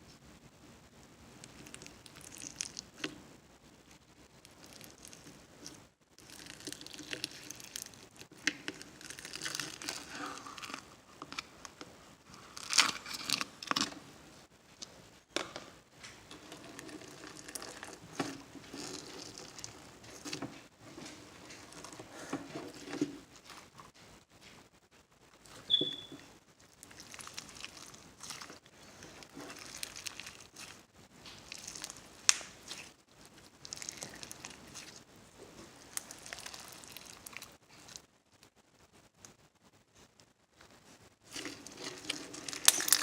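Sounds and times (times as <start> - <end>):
slime squished by hand: 26.7 - 35.0, 35.8 - 38.0, 41.3 - 43.0.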